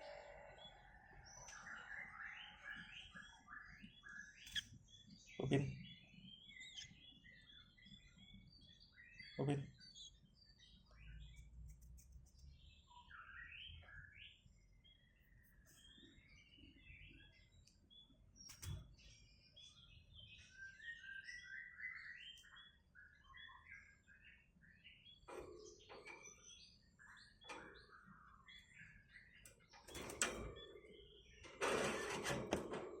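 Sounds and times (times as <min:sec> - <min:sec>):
bird chirps and twitters: 0:00.0 - 0:33.0.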